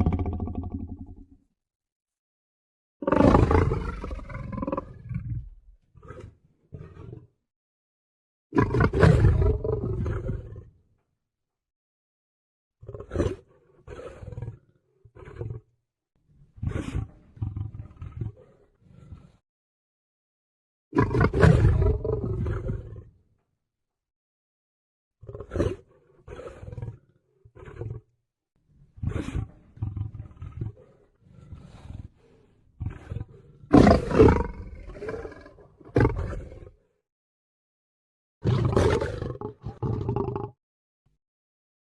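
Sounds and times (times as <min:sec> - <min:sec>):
lion roaring: 0:03.0 - 0:07.3, 0:08.6 - 0:10.7, 0:16.6 - 0:19.4, 0:21.0 - 0:23.1, 0:25.2 - 0:28.1, 0:29.0 - 0:36.9, 0:38.4 - 0:40.6.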